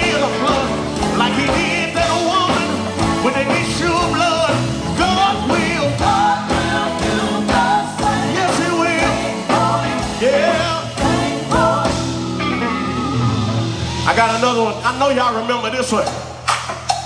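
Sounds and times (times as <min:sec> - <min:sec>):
person singing: 0:00.0 - 0:13.3
band playing gospel music: 0:00.0 - 0:17.0.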